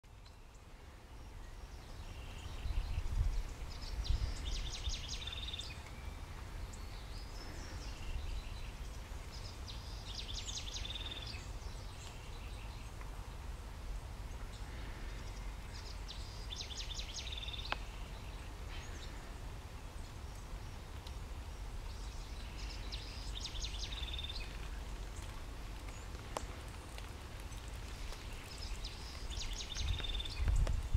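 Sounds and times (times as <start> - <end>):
bird singing trill: 1.3 - 13.0, 15.1 - 19.0, 21.9 - 25.0, 28.2 - 30.7.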